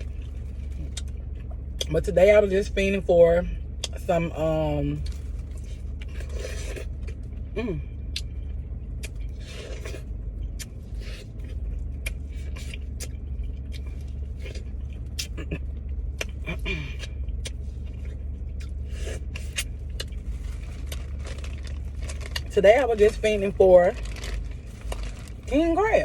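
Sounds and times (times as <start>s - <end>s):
car engine idling: 0.0s - 26.0s
chewing mouth sounds: 0.1s - 1.9s, 9.0s - 21.0s.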